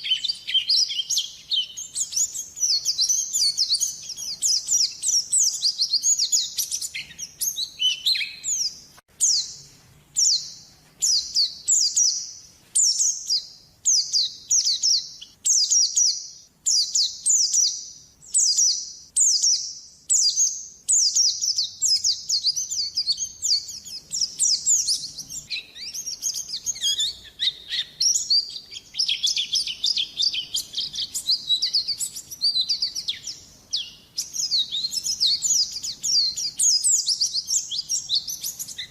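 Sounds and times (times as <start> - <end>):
small bird singing: 0.0 - 38.9.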